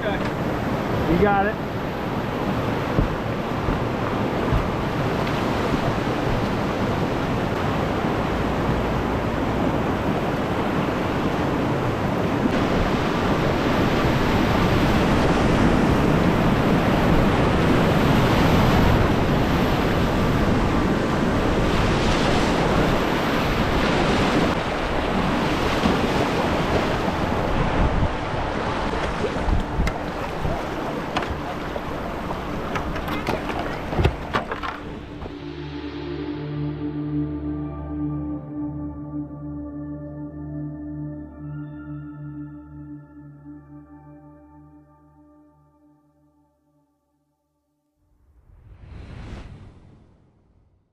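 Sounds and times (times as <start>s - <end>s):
wind on microphone: 0.0s - 35.6s
river rapids rushing: 22.5s - 35.4s.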